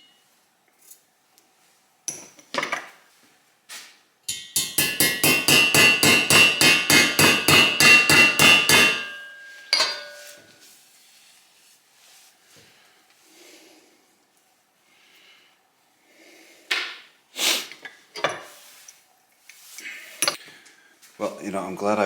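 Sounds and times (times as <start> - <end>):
hammer striking metal: 4.3 - 10.4.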